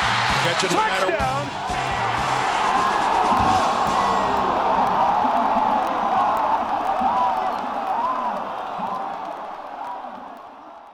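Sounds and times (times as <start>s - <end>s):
music playing: 0.0s - 5.6s
stadium crowd cheering: 0.0s - 10.9s.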